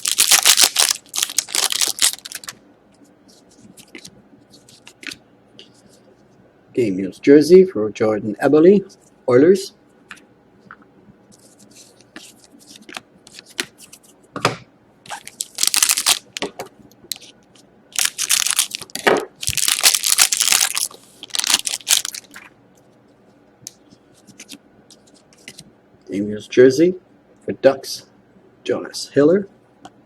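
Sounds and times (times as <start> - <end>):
wrapper tearing and crinkling: 0.0 - 2.6, 15.1 - 16.4, 17.9 - 22.4.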